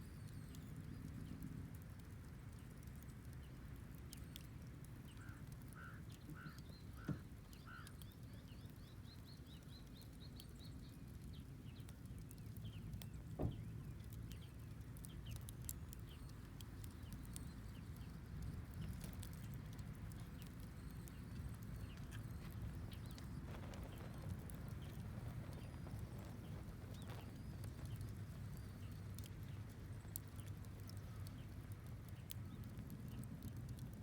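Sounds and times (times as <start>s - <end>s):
bonfire crackling: 0.0s - 34.0s
birds chirping: 5.0s - 31.5s.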